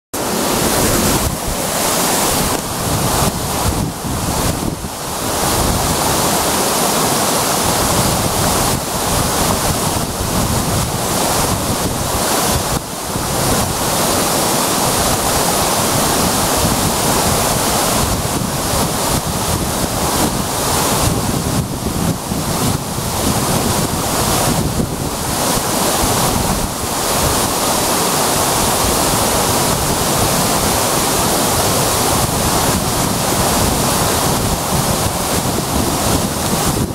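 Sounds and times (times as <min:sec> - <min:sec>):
waterfall rushing: 0:00.2 - 0:36.9.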